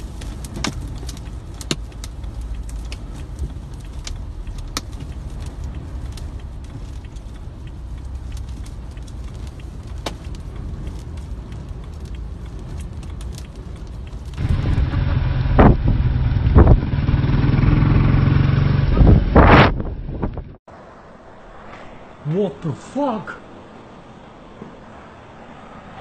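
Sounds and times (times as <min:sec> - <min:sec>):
sharp ticks: 0:00.0 - 0:14.4
strong storm wind: 0:00.0 - 0:26.0.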